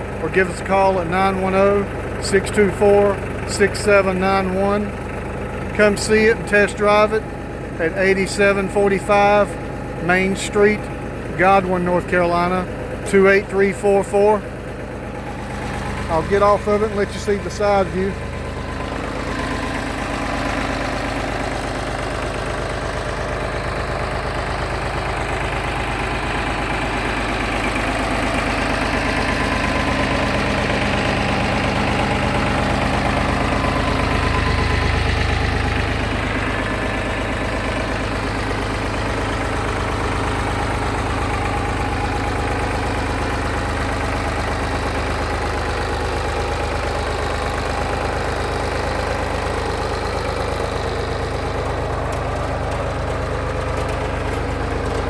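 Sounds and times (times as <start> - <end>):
tractor diesel engine idling: 0.0 - 55.0.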